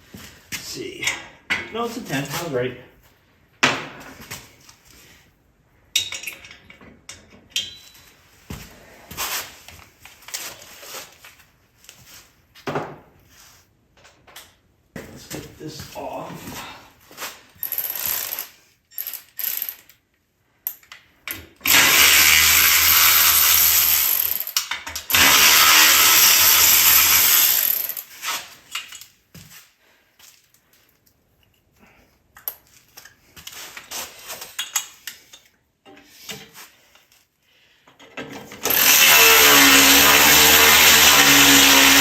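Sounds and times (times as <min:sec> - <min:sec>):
power tool spinning socket: 0:21.6 - 0:28.1, 0:38.6 - 0:42.0
rattle of parts being handled: 0:32.4 - 0:37.2.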